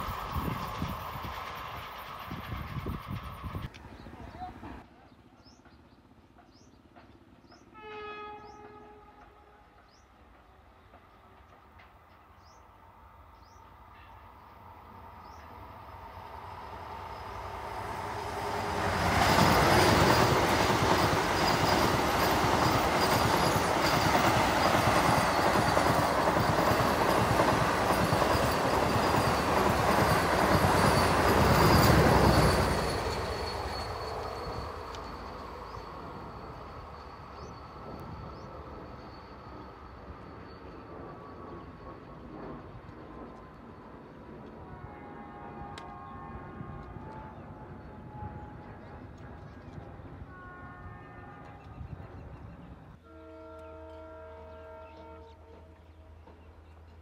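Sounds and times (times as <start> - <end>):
train passing at speed: 0.0 - 57.0.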